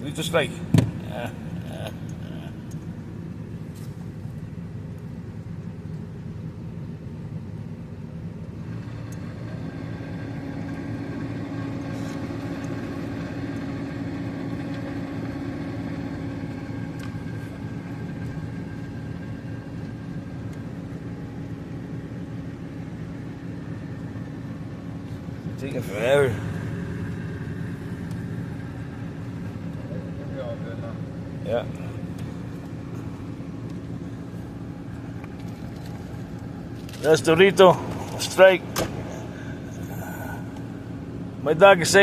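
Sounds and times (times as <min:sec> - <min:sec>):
car engine idling: 0:00.0 - 0:42.0
higher-pitched hum: 0:14.4 - 0:42.0.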